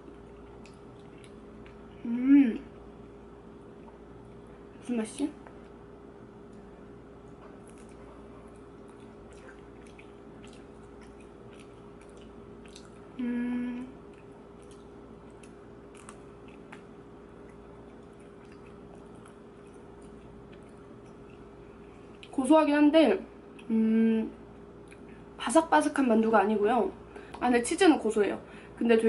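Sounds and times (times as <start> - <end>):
close-up chewing: 0.0 - 1.9, 6.4 - 13.2, 13.8 - 22.4
steady low hum: 0.0 - 29.0
person humming mm: 2.0 - 2.7, 13.2 - 14.0, 23.6 - 24.4.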